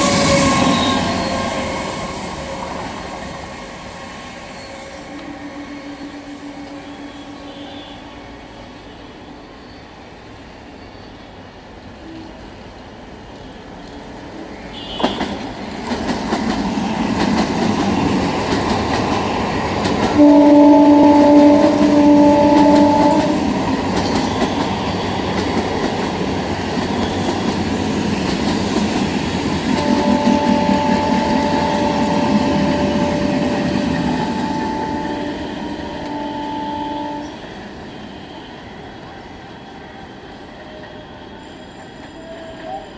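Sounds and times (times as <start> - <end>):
multi-tone train horn: 0.0 - 4.0, 4.7 - 9.4, 14.7 - 15.4, 19.9 - 25.6, 29.6 - 38.6
train rumble and wheel clatter: 0.0 - 42.9.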